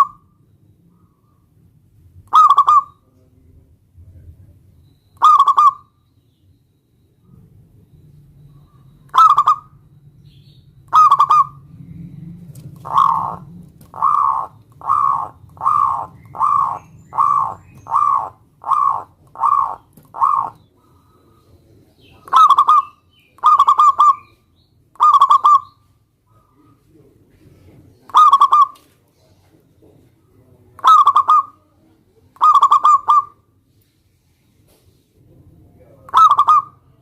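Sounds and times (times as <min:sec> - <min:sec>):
dove cooing: 0:02.2 - 0:03.0, 0:05.2 - 0:05.9, 0:08.5 - 0:09.8, 0:10.9 - 0:21.4, 0:22.1 - 0:24.4, 0:25.0 - 0:28.9, 0:30.8 - 0:33.5, 0:35.9 - 0:37.0.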